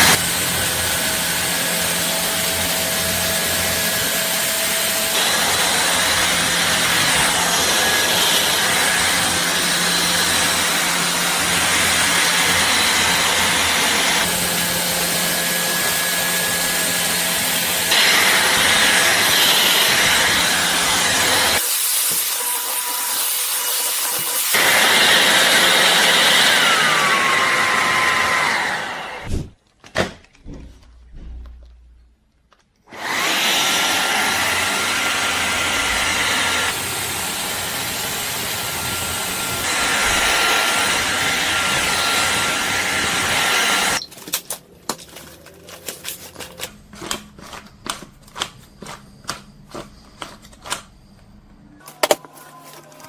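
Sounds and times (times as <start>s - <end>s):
vacuum motor whining: 0.0s - 21.6s, 24.1s - 29.4s, 32.9s - 44.1s.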